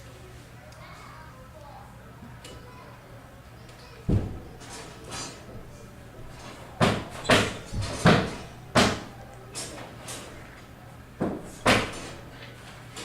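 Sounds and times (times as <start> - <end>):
sharp knocks: 4.1 - 5.3, 6.4 - 9.1, 11.2 - 12.2.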